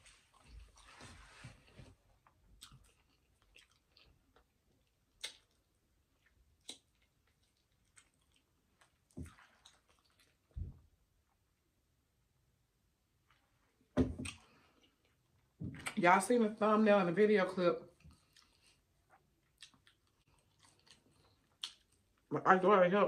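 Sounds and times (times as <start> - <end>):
close chewing of fried chicken: 0.0 - 10.6, 17.9 - 22.3
wet mouth clicks and smacks: 5.1 - 10.4, 19.4 - 22.2.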